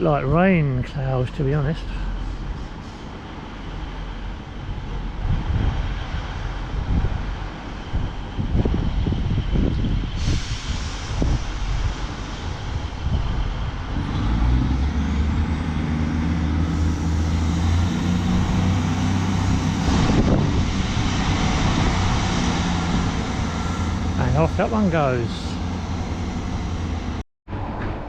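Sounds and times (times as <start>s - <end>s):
diesel train engine droning: 0.0s - 28.0s
wind buffeting microphone: 2.1s - 27.2s.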